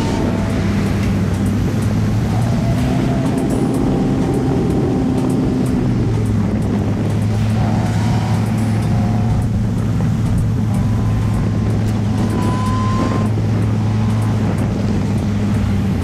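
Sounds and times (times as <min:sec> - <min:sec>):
car engine running: 0:00.0 - 0:16.0
faint wavering high tone: 0:10.6 - 0:14.4.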